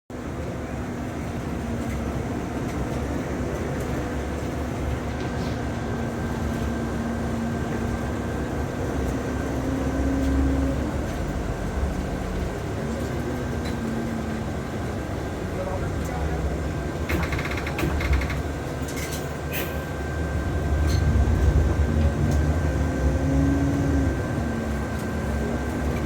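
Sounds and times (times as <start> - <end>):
droning engine hum: 0.2 - 26.0
low rumble: 20.2 - 24.4.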